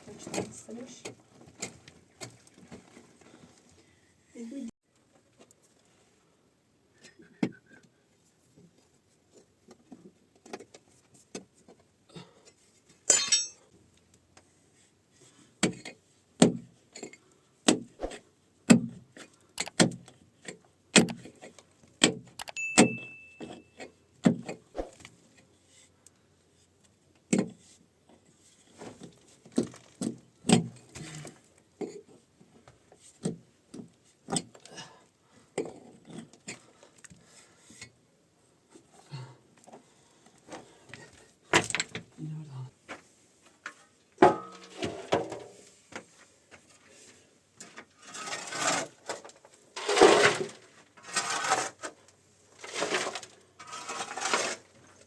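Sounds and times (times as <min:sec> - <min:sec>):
short scrape: 0:49.8 - 0:51.8, 0:52.7 - 0:54.7.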